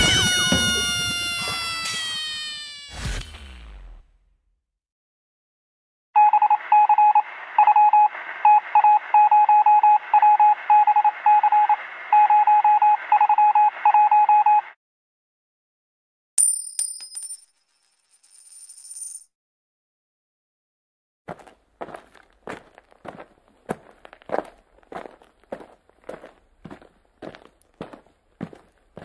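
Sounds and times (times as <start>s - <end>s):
morse code beeps: 6.2s - 14.7s
coin clinking: 16.4s - 19.3s.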